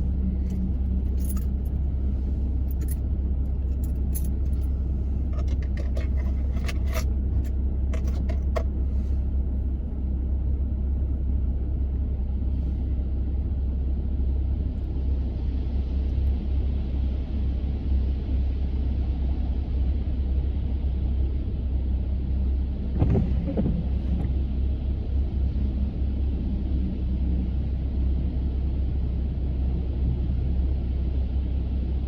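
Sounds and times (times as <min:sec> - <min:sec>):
car engine and road noise: 0:00.0 - 0:32.0.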